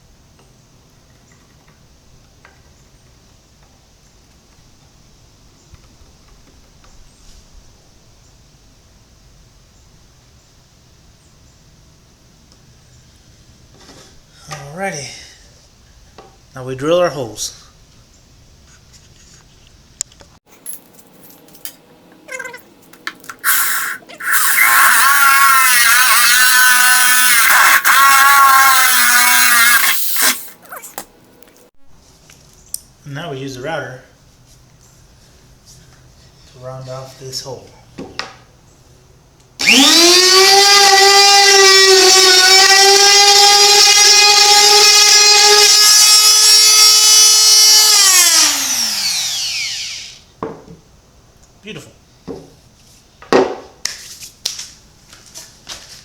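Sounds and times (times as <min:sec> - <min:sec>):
electric drill boring wood: 0:23.4 - 0:30.6, 0:39.6 - 0:50.3
wood router whining: 0:23.4 - 0:30.6, 0:39.6 - 0:50.3.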